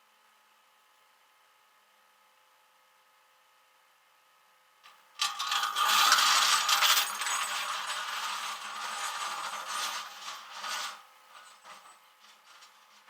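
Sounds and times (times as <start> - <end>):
mechanical rattling and clattering: 5.2 - 13.0.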